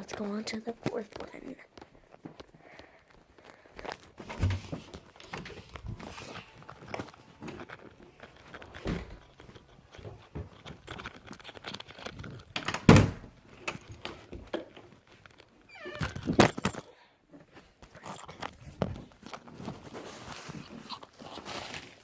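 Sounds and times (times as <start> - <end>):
footsteps: 0.0 - 12.4.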